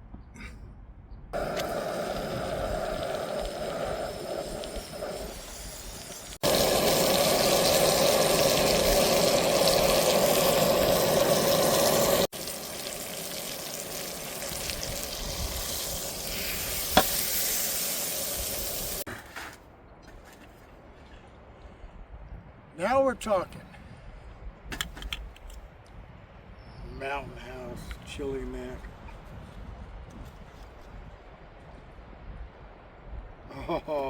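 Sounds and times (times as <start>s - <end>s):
steak sizzling in a hot pan: 1.4s - 19.0s.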